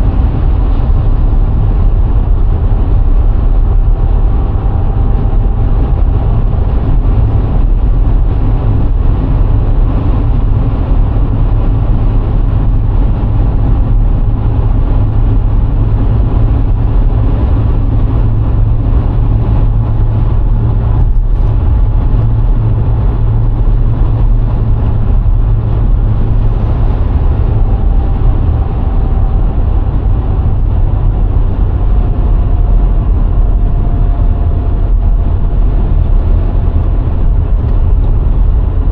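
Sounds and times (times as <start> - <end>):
car engine hum: 0.0 - 38.9
road and wind rumble: 0.0 - 38.9.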